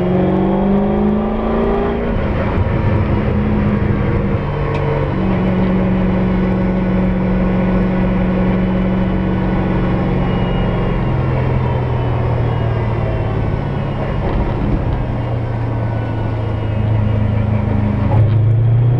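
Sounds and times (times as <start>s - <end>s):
car engine revving: 0.0s - 18.9s.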